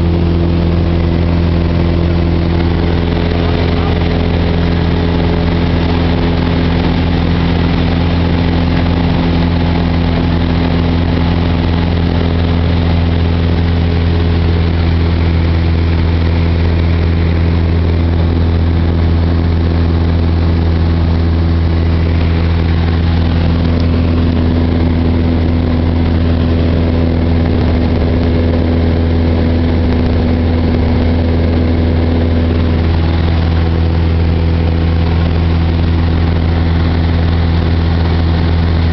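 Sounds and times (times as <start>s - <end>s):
propeller plane engine droning: 0.0s - 38.9s.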